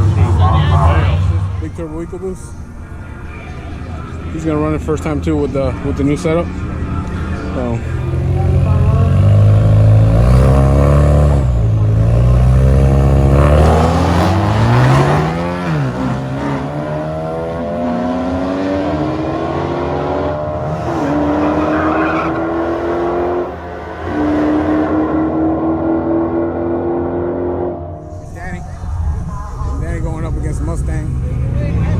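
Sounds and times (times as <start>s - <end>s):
race car accelerating through gears: 6.8s - 28.4s.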